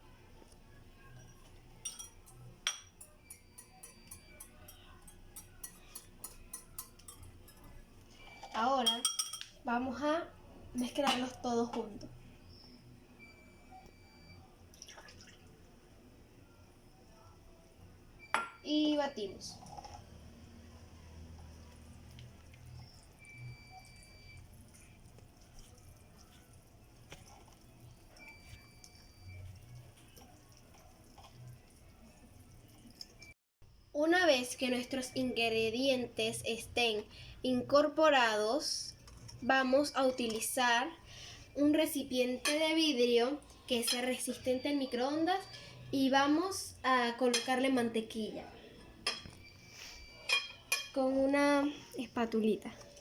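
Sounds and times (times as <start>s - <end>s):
utensil clinking against bowl: 1.8s - 7.8s, 8.8s - 9.6s
stirring batter in a bowl: 21.2s - 33.2s.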